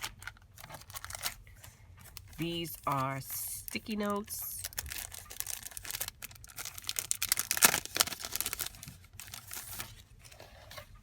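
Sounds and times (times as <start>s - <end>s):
sticky notes wrapping crinkling: 0.0s - 10.0s.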